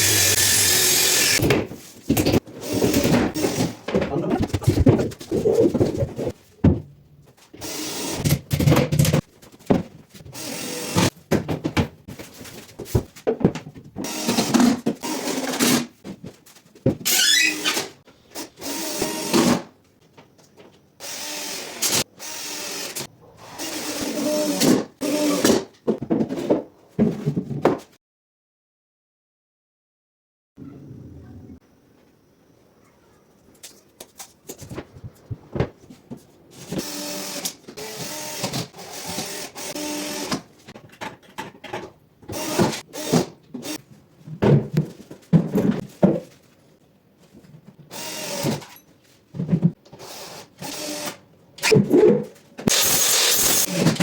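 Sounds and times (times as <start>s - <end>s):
power drill running: 0.0s - 1.4s, 21.0s - 23.0s, 36.8s - 40.4s, 47.9s - 48.5s.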